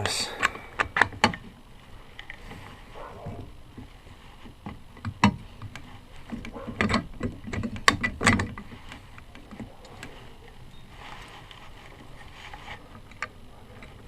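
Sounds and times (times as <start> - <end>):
metal parts clicking and knocking: 4.6 - 10.2.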